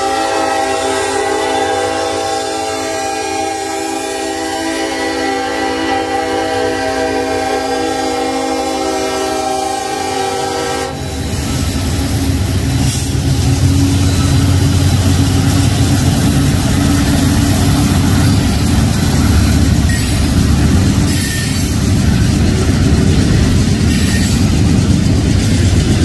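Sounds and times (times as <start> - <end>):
locomotive air horn chord: 0.0 - 13.2
diesel locomotive engines: 0.0 - 26.0
train cars rolling: 0.0 - 26.0.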